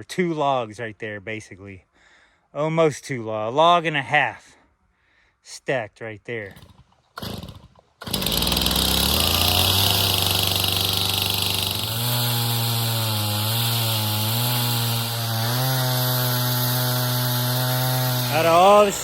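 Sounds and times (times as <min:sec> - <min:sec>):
chainsaw engine revving: 0:06.5 - 0:19.0.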